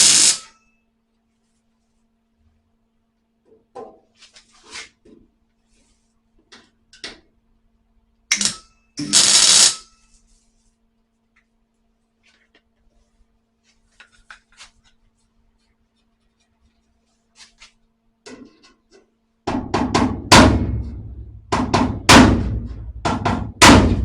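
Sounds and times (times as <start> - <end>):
crackling tack welds: 0.0 - 0.6, 8.3 - 10.0.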